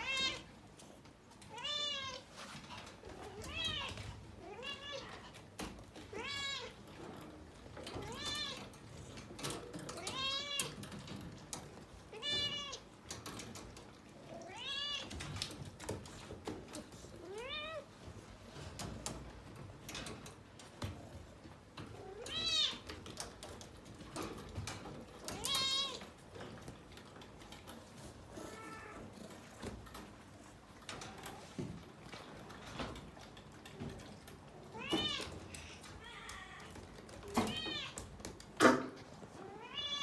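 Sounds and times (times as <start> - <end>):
cat meowing: 0.0 - 0.5, 1.5 - 2.3, 3.3 - 5.3, 12.1 - 12.8, 14.4 - 15.1, 17.2 - 17.9, 25.4 - 26.0, 28.4 - 29.0, 34.7 - 35.3, 39.4 - 40.0.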